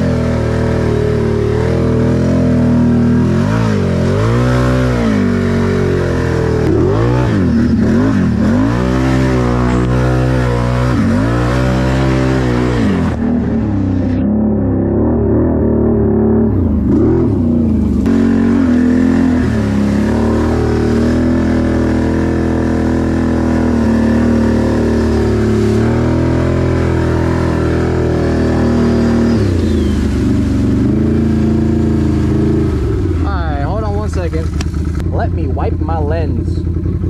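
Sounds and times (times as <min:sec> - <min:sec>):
atv engine running: 0:00.0 - 0:37.0.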